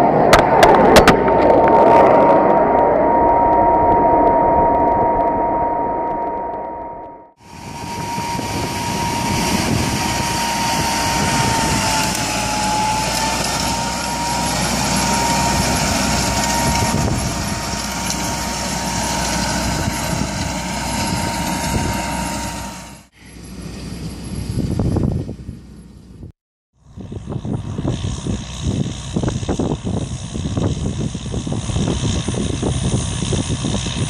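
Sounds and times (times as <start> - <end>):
steady high whine: 0.0 - 34.0
tractor engine under load: 7.6 - 24.4.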